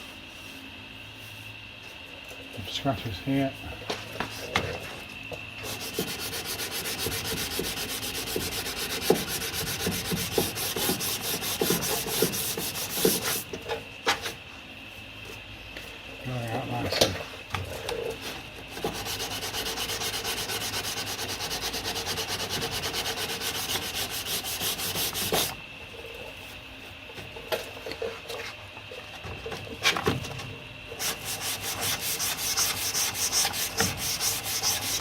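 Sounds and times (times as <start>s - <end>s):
hand sanding strokes: 5.6s - 13.5s, 18.7s - 25.6s, 31.0s - 35.0s.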